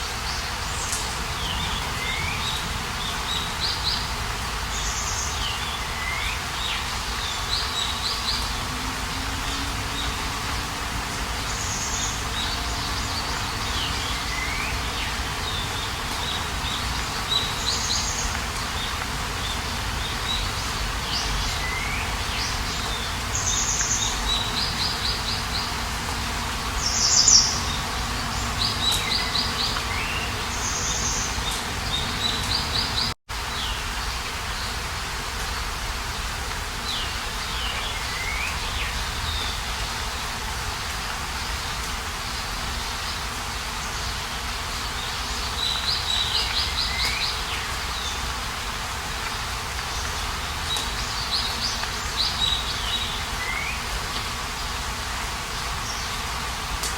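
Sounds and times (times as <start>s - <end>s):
songbirds singing and calling: 0.0s - 56.9s
steady rushing noise: 6.6s - 33.2s.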